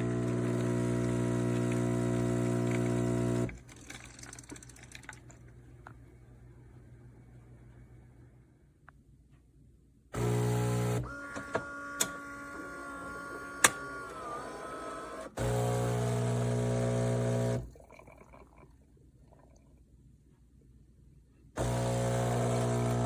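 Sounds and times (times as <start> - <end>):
espresso machine humming: 0.0 - 3.6, 10.2 - 17.6, 21.6 - 23.0
espresso machine pump buzzing: 0.0 - 3.6, 10.2 - 17.7, 21.6 - 23.0.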